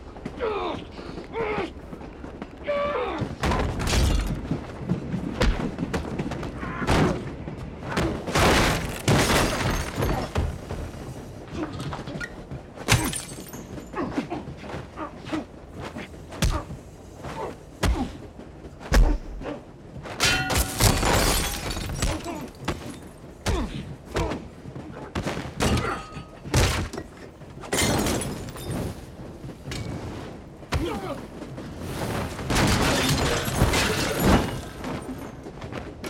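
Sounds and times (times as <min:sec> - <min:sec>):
glass shattering: 0:12.9 - 0:13.7, 0:20.2 - 0:23.1, 0:27.7 - 0:28.9, 0:32.6 - 0:35.2.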